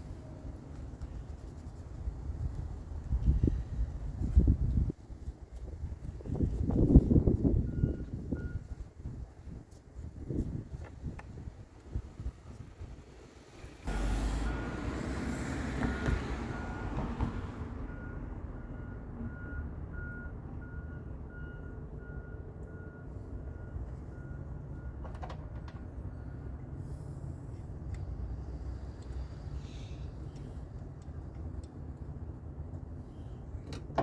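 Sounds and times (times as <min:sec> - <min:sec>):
vehicle warning chime beeping: 0:07.6 - 0:08.8, 0:13.9 - 0:17.2, 0:17.9 - 0:25.0
car engine starting and idling: 0:13.4 - 0:17.6.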